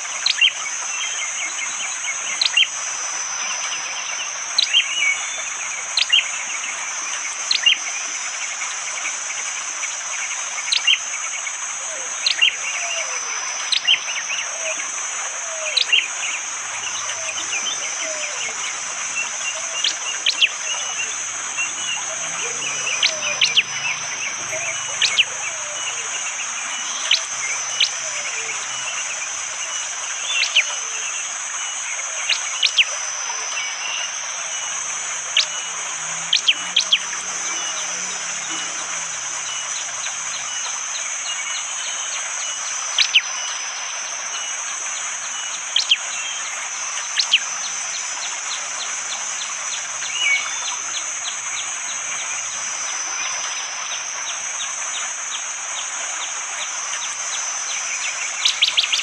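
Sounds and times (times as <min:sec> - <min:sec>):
forest background: 0:00.0 - 0:59.0
high-pitched drone: 0:11.8 - 0:44.2.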